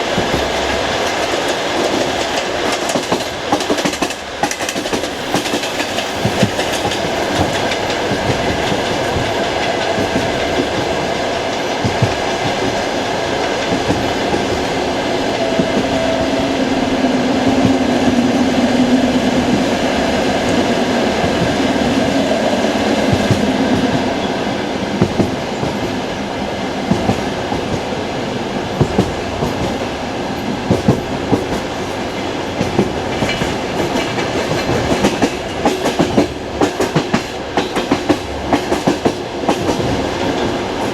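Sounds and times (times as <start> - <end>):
train running rumble: 0.0 - 40.9
train wheels clattering over rail joints: 0.1 - 16.4, 28.7 - 40.9.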